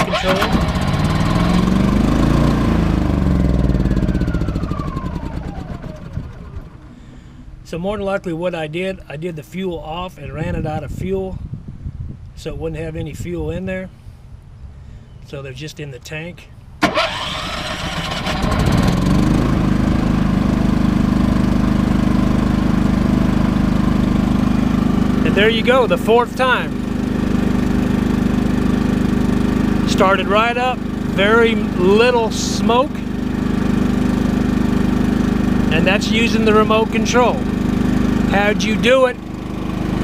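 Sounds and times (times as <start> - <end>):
generator engine starting and stalling: 0.0 - 7.5, 16.8 - 40.0.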